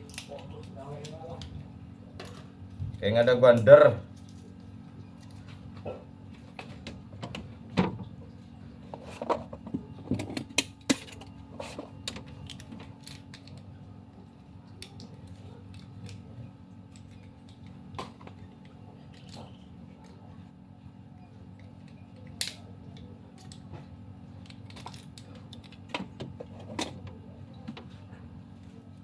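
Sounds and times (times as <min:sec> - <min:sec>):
steady low hum: 0:00.0 - 0:29.0
metal parts clicking and knocking: 0:24.4 - 0:27.1.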